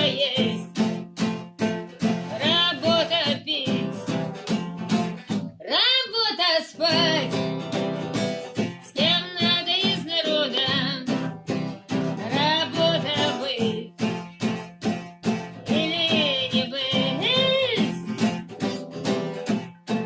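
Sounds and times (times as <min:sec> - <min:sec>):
woman singing: 0:00.0 - 0:01.0, 0:02.0 - 0:04.8, 0:05.4 - 0:07.8, 0:08.6 - 0:14.2, 0:15.5 - 0:18.4
strummed acoustic guitar: 0:00.0 - 0:20.0.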